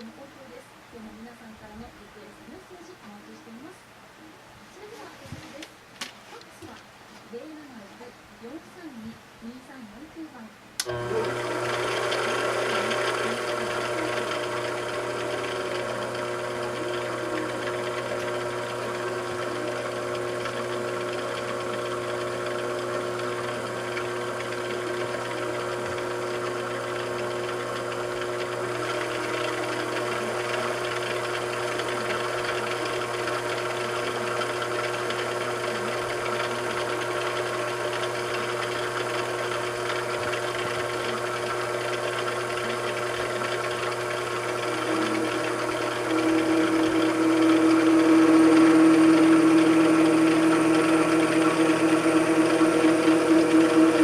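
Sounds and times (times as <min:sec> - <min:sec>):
machine tool motor humming: 0:10.8 - 0:54.0.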